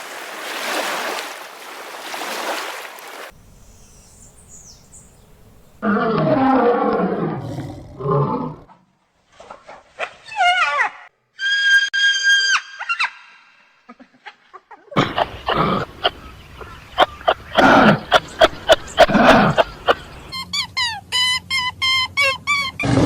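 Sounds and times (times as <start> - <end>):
animal roar: 5.8 - 8.8.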